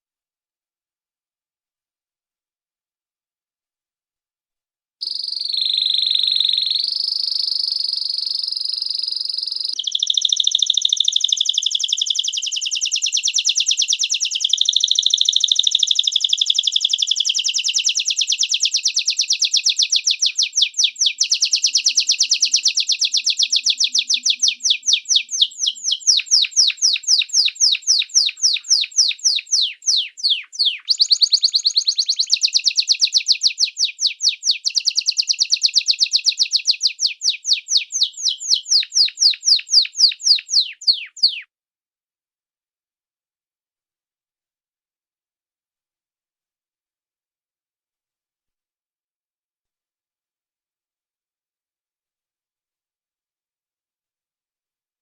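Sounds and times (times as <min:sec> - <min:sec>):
bird trilling: 0:05.0 - 0:41.4.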